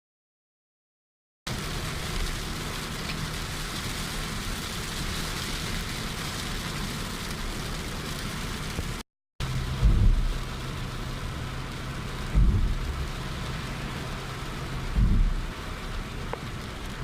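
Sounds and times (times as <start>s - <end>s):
heavy rain falling: 1.5s - 17.0s
low rumble: 9.4s - 17.0s.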